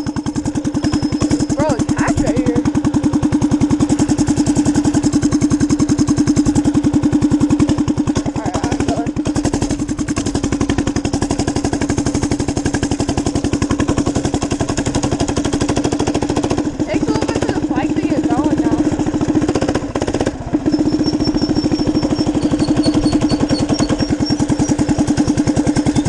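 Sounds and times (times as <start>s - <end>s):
minibike engine running: 0.0s - 26.0s.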